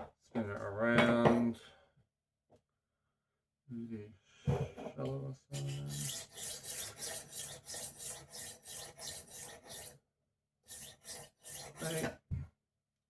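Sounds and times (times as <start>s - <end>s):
knife sharpener rasping on blade: 5.5s - 10.0s, 10.7s - 12.1s.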